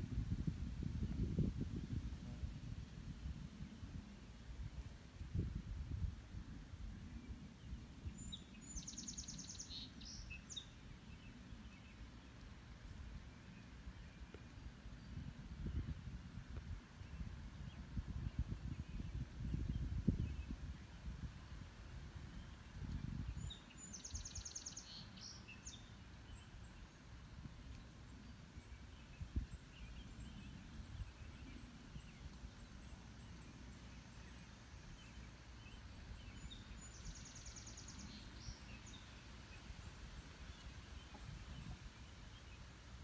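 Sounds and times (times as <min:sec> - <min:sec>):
faint bird chirps: 0:07.1 - 0:12.0, 0:22.4 - 0:42.7
songbird singing high trill: 0:07.3 - 0:12.0, 0:22.3 - 0:27.9, 0:28.6 - 0:39.6.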